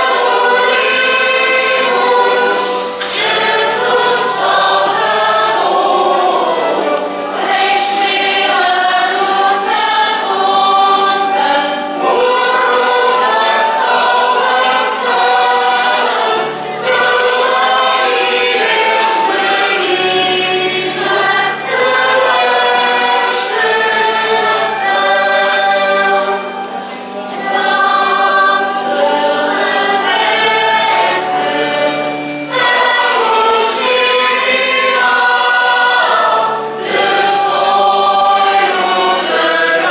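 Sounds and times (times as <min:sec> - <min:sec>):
choir singing a hymn: 0:00.0 - 0:39.9
low accompanying notes: 0:00.0 - 0:39.9.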